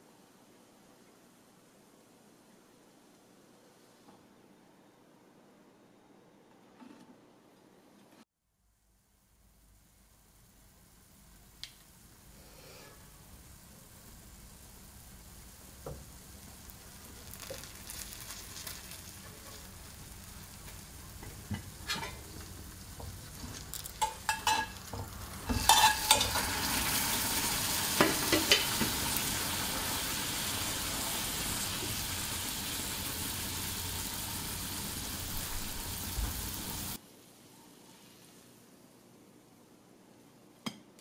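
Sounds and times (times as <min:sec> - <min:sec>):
bread sizzling in butter: 0:09.8 - 0:37.0.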